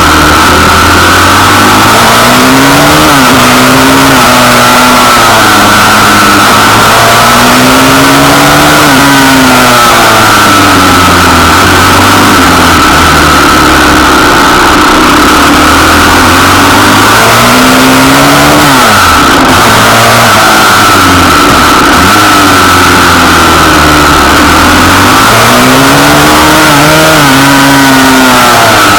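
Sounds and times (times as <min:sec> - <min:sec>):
small motorbike engine revving: 0:00.0 - 0:28.9.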